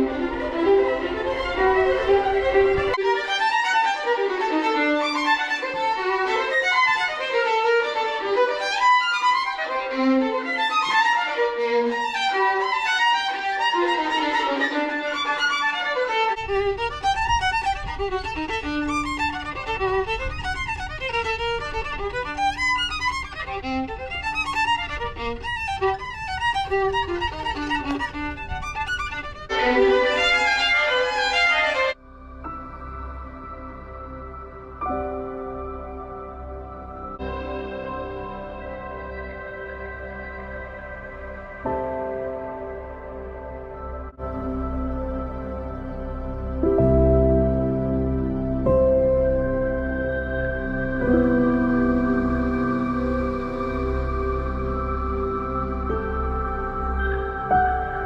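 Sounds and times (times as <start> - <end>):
violin playing quick melody: 0.0 - 32.0.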